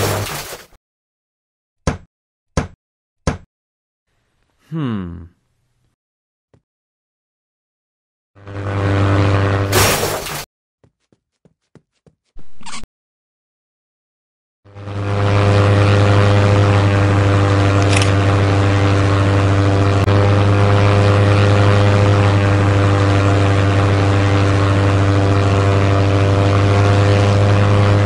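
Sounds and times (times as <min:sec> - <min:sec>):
propeller airplane engine: 0:08.4 - 0:10.5, 0:14.7 - 0:28.0.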